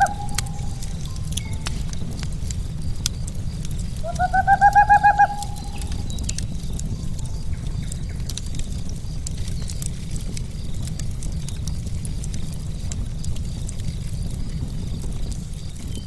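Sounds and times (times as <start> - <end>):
bird hooting: 0.0 - 1.0, 4.0 - 6.2
low rumble: 0.0 - 15.6
wood fire crackling and popping: 0.0 - 16.0.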